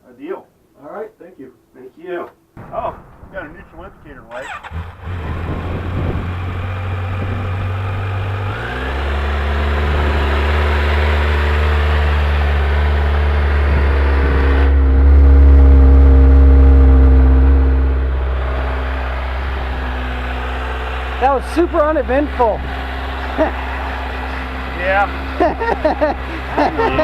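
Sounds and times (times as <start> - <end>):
motorcycle engine idling: 16.1 - 27.0.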